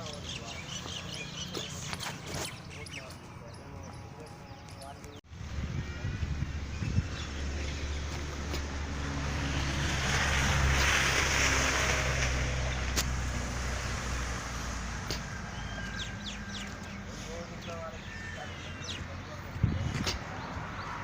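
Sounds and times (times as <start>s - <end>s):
vehicle passing by: 6.5s - 17.8s.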